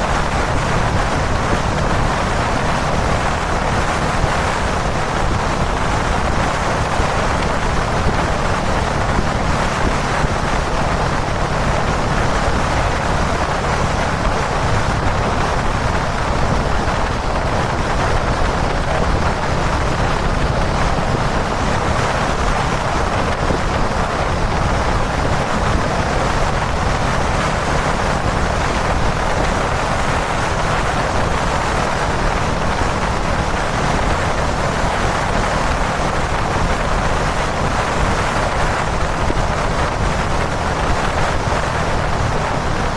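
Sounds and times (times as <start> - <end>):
motorcycle engine cruising: 0.0 - 42.9
wind noise on microphone: 0.0 - 42.9.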